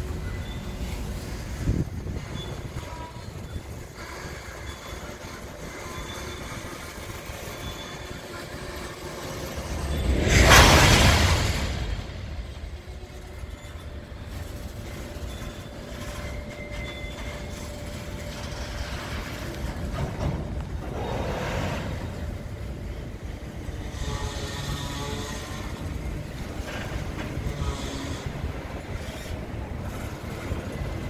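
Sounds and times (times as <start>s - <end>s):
rumble of rolling freight cars: 0.0s - 31.0s
faint wheel squealing: 0.1s - 10.4s, 13.3s - 19.9s.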